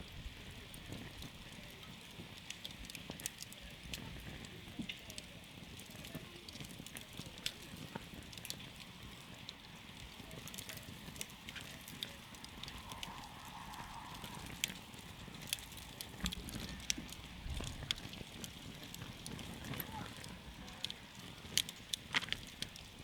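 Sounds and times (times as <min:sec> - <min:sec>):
campfire crackling: 0:00.0 - 0:23.0
sharp pops from fire: 0:00.1 - 0:23.0.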